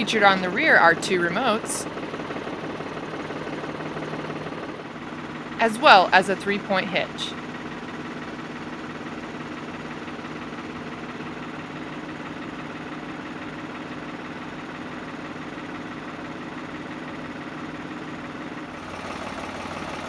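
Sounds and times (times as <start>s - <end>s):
tractor diesel engine idling: 0.0s - 20.0s.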